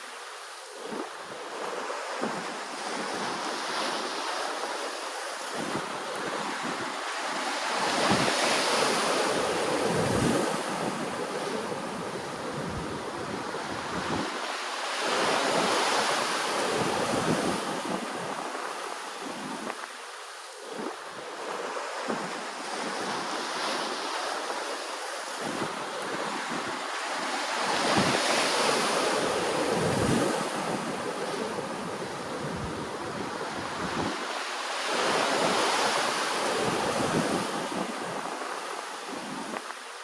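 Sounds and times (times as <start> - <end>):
ocean waves breaking: 0.0 - 40.0
wind buffeting microphone: 5.4 - 20.0, 25.3 - 39.8.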